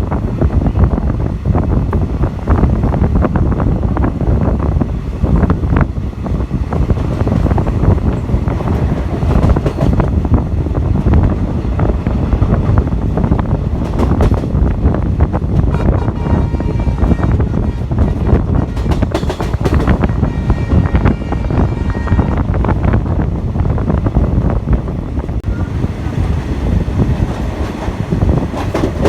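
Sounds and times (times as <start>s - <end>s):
train rumble: 0.0s - 29.0s
wind buffeting microphone: 0.0s - 29.0s.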